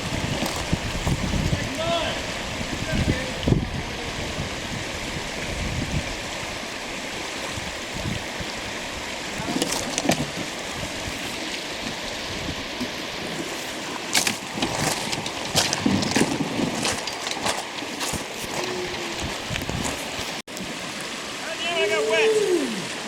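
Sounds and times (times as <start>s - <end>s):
river water rushing: 0.0s - 23.0s.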